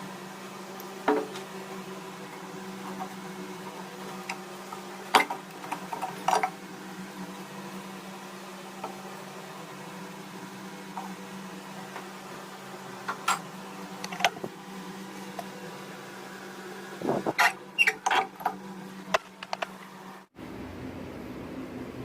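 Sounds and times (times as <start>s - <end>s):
steady low hum: 0.0s - 22.0s
small parts clicking and knocking: 18.0s - 19.8s.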